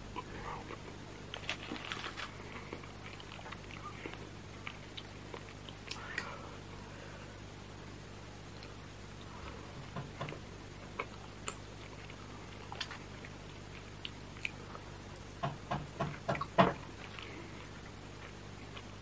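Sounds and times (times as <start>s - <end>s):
chewing with wet mouth clicks: 11.0s - 15.3s.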